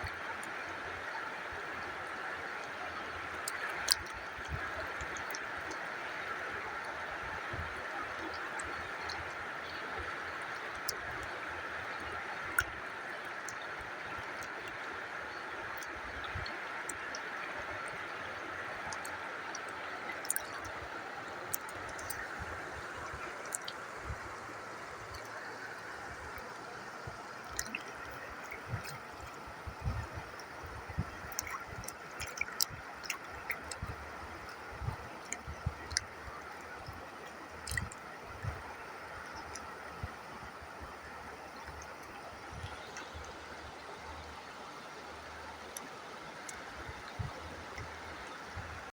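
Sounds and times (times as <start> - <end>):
small ticks and splashes: 0.0 - 48.9
water gurgling rush: 0.0 - 48.9.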